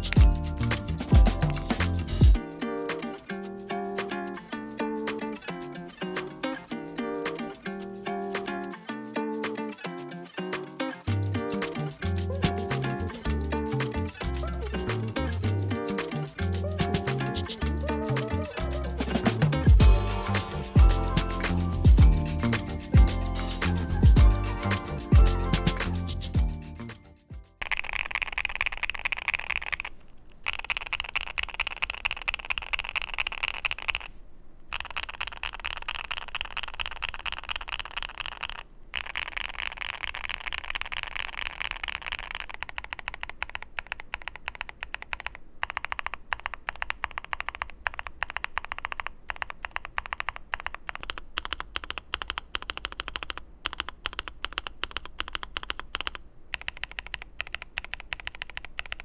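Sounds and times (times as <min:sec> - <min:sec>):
mechanical keyboard typing: 0:27.6 - 0:59.0.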